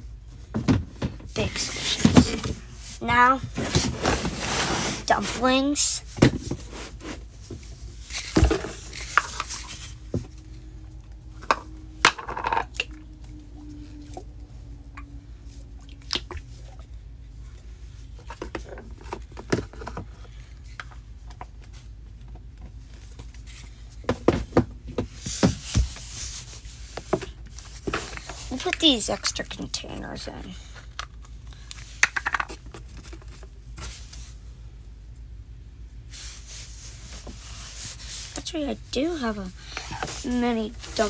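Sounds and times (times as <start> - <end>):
toys and plastic containers handled: 0.5 - 10.4, 18.1 - 34.4, 36.2 - 41.0.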